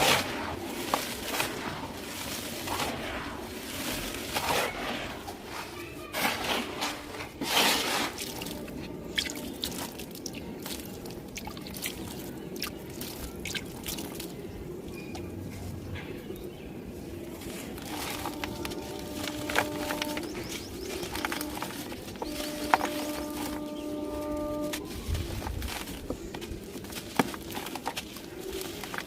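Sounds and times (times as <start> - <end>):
dry material crunching by hand: 0.0 - 14.4, 17.3 - 29.0
small sharp crackles: 17.6 - 29.0.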